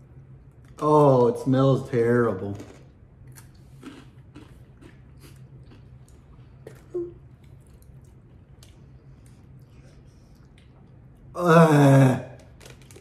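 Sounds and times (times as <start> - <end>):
crunchy snack sticks being chewed: 2.5 - 9.6, 12.4 - 13.0
person humming mm: 6.9 - 7.2.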